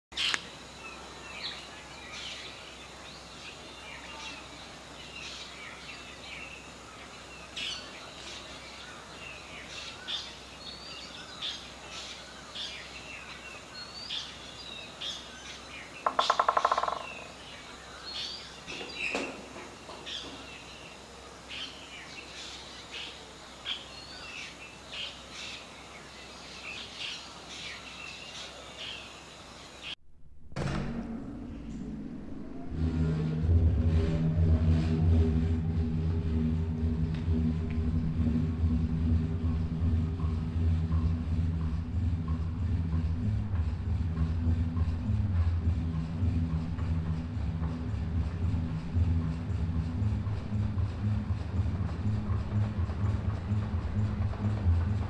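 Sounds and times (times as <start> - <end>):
wild birds chirping: 0.1 - 30.0
outdoor background noise: 0.1 - 55.0.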